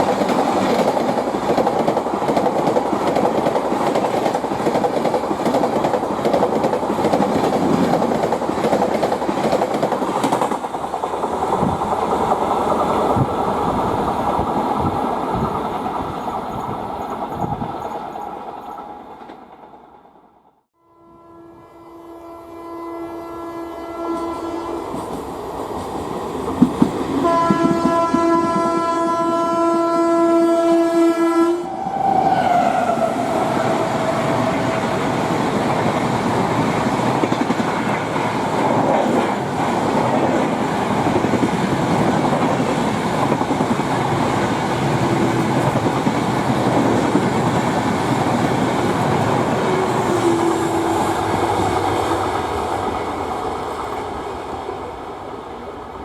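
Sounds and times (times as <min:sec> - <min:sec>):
train wheels rumbling and rattling: 0:00.0 - 0:20.1, 0:24.8 - 0:29.6, 0:31.7 - 0:56.0
train horn blasts: 0:20.8 - 0:25.1, 0:27.2 - 0:33.7, 0:49.5 - 0:52.3.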